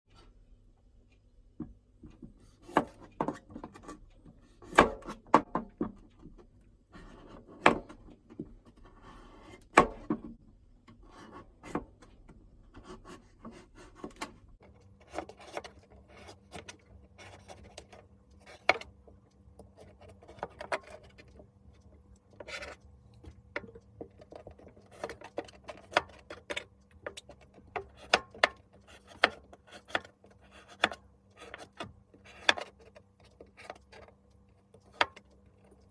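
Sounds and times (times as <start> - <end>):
rubbing and scraping: 22.2 - 35.9.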